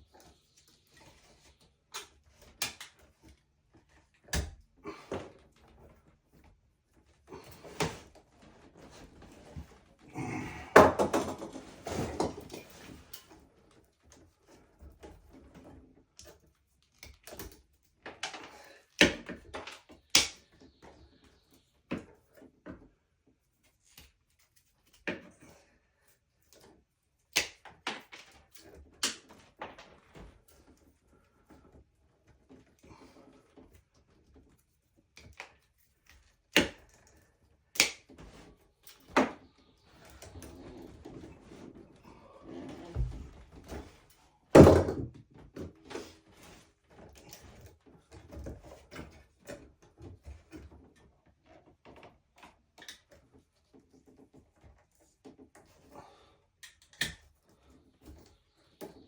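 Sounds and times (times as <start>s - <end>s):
clattering and rustling: 7.1s - 16.0s.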